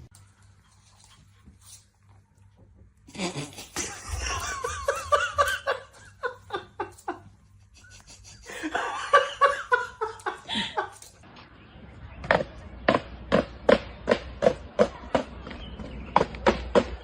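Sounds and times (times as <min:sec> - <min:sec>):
person laughing: 0:03.1 - 0:11.1.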